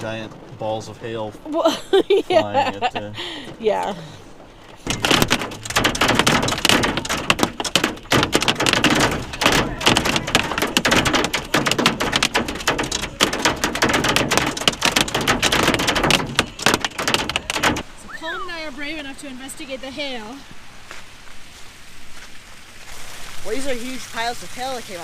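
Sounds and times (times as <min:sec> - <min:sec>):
hail pelting vehicle roof: 0:00.0 - 0:19.7.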